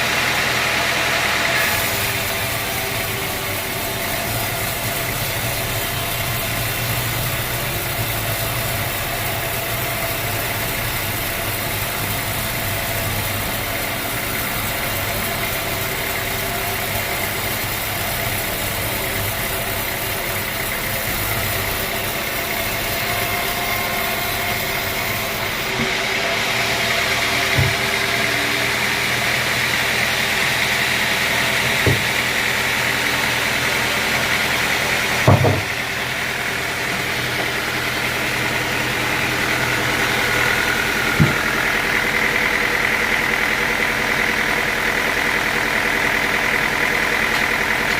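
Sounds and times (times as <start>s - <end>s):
sawmill machinery humming: 0.0s - 47.9s
short knocks: 35.3s - 35.7s.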